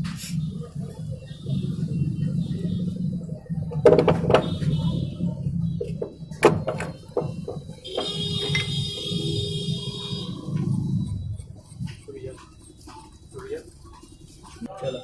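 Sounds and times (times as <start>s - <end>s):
metal tools knocking and clinking: 6.0s - 8.7s.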